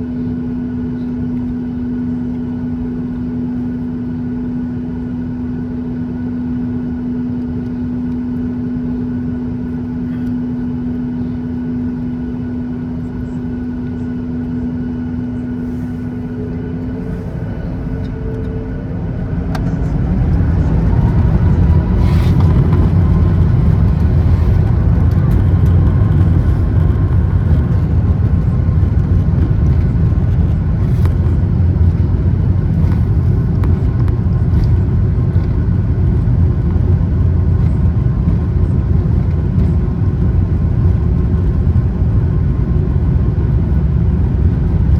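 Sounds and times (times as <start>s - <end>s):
jet engines humming: 0.0s - 44.9s
jet engines spooling up: 15.2s - 42.1s.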